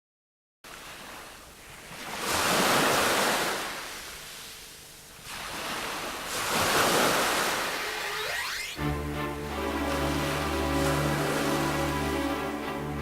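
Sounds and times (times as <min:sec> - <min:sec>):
rushing noise like waves: 0:00.7 - 0:13.0
short rising whistle: 0:07.6 - 0:08.8.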